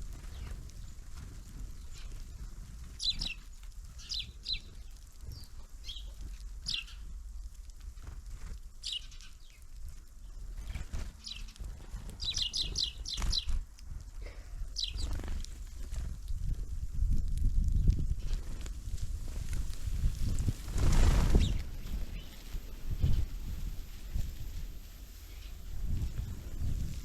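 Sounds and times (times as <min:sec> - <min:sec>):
songbirds chirping: 0:00.0 - 0:07.6, 0:08.7 - 0:13.6, 0:14.7 - 0:15.3, 0:19.2 - 0:27.0.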